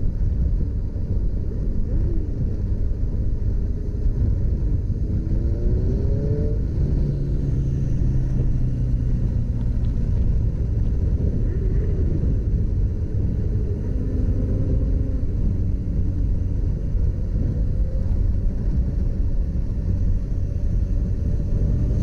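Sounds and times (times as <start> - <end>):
road and wind noise: 0.0 - 22.0
motorcycle engine revving: 5.1 - 10.8, 12.9 - 22.0.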